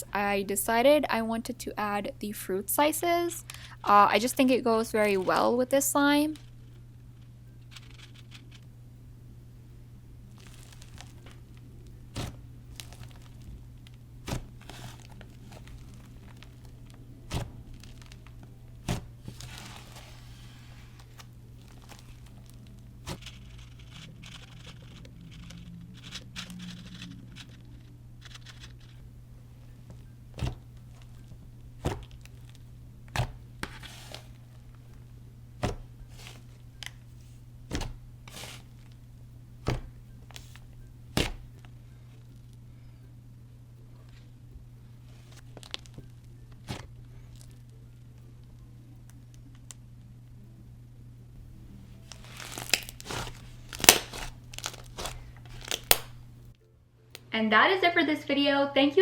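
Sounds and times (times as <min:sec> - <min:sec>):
steady low hum: 0:00.0 - 0:59.0
slime squelching: 0:10.3 - 0:27.5, 0:52.0 - 0:56.2.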